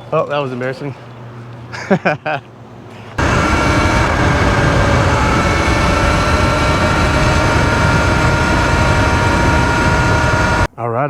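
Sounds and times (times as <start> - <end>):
electric motor whining: 3.2 - 10.7.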